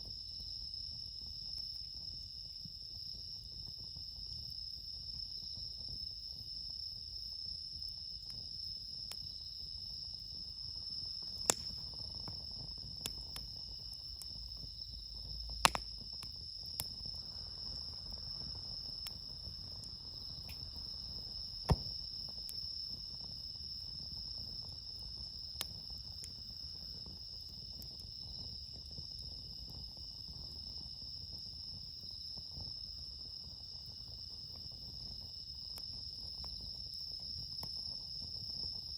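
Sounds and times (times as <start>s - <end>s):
crickets chirping: 0.0s - 38.9s
campfire crackling: 8.2s - 37.0s
sharp fire pops: 10.8s - 23.0s.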